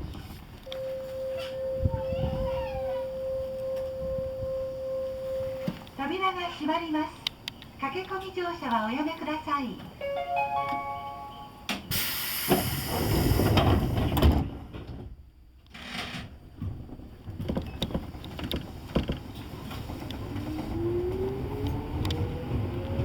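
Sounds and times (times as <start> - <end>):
train doors air hiss: 11.7 - 14.3
train door thuds and clunks: 11.7 - 15.3, 15.9 - 21.2
train motors whining: 19.3 - 23.0.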